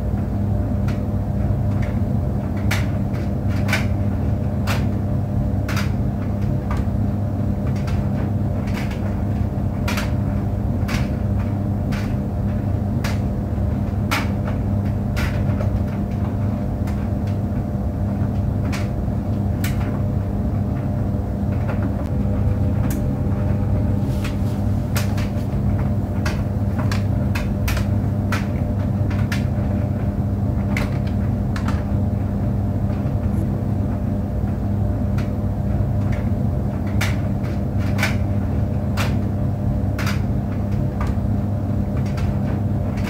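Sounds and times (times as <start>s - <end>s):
tumble dryer drum rumbling: 0.0s - 43.0s
clicks and knocks of tumbling load: 0.1s - 43.0s.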